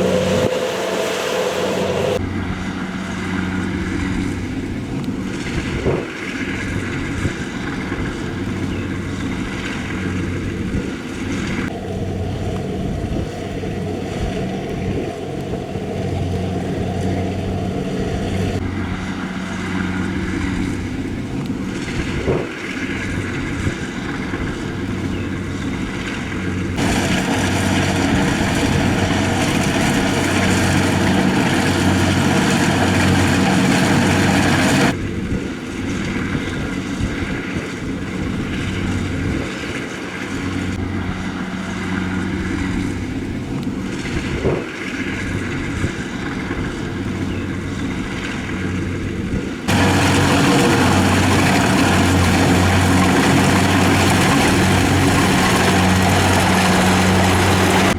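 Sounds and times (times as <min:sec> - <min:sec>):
high-pitched mechanical noise: 0:00.0 - 0:03.4, 0:49.7 - 0:57.9
low engine hum: 0:00.0 - 0:57.9.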